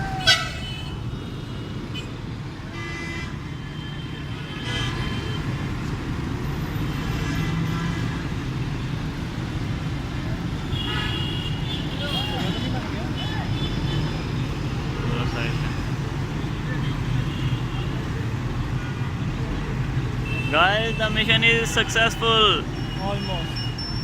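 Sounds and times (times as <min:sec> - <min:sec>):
road traffic: 0:00.0 - 0:24.0
vehicle horn toots: 0:10.7 - 0:12.7.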